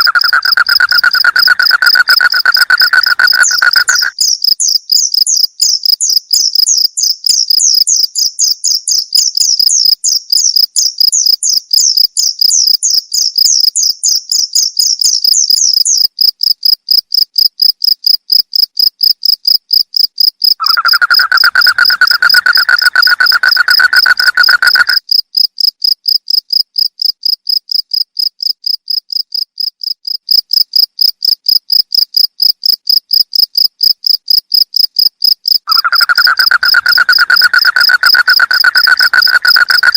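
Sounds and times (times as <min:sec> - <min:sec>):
higher insect chirping: 0:00.0 - 0:16.1, 0:20.4 - 0:25.2, 0:34.8 - 0:39.9
crickets chirping: 0:00.0 - 0:39.9
low steady insect trill: 0:00.0 - 0:39.9.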